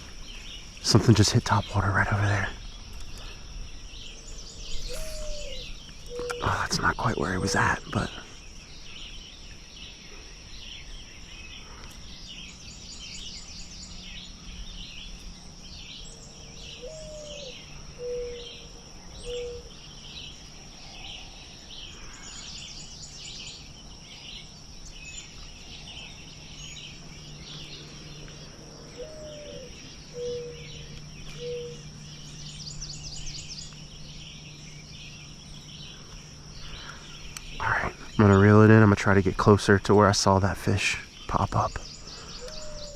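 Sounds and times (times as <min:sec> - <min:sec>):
high insect drone: 0:00.0 - 0:42.9
songbirds chirping and trilling: 0:00.0 - 0:42.9
low rising animal call: 0:03.9 - 0:08.1, 0:25.6 - 0:38.6, 0:41.9 - 0:42.9.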